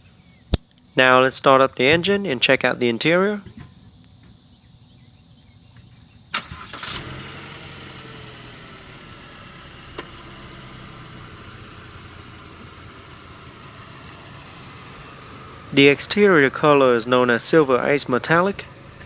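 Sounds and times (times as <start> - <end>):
car engine starting and idling: 6.3 - 19.0.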